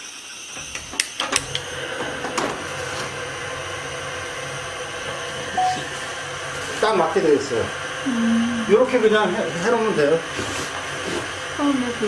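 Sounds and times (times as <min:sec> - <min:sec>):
steady hum: 0:01.3 - 0:10.4.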